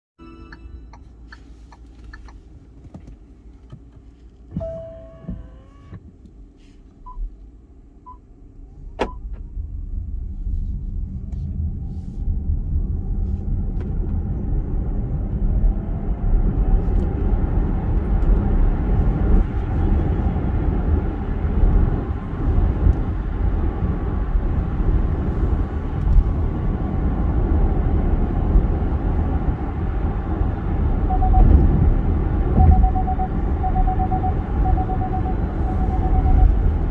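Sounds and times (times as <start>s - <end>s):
short electronic beeps: 31.1s - 31.7s, 32.6s - 36.9s.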